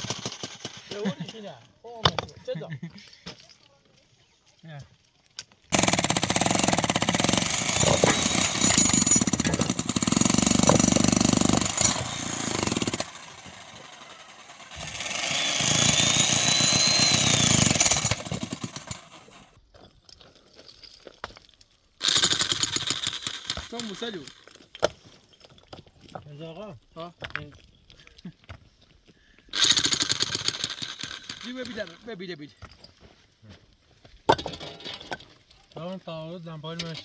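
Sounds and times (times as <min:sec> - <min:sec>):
small engine running: 0:05.8 - 0:19.5, 0:22.0 - 0:24.3, 0:29.6 - 0:31.9.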